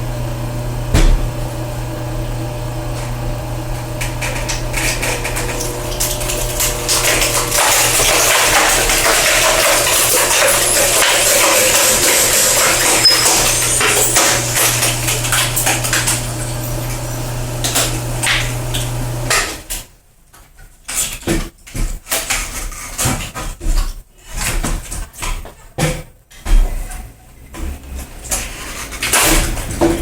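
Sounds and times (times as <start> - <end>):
electric motor humming: 0.0 - 19.3.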